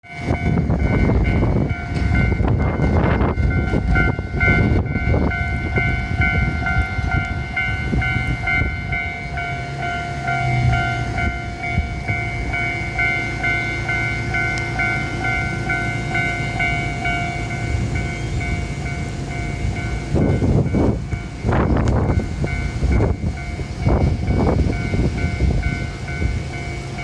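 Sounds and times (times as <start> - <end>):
level-crossing bell ringing: 0.0 - 27.0.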